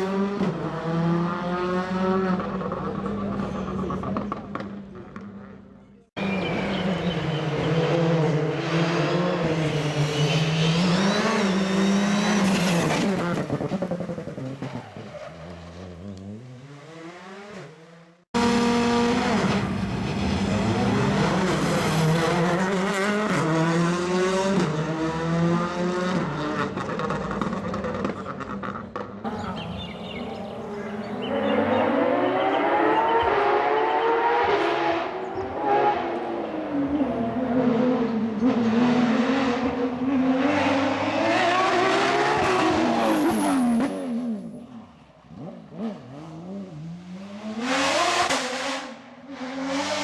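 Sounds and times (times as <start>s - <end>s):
rally car engine revving: 6.2s - 50.0s
tyre squeal: 9.2s - 12.9s, 42.9s - 44.2s.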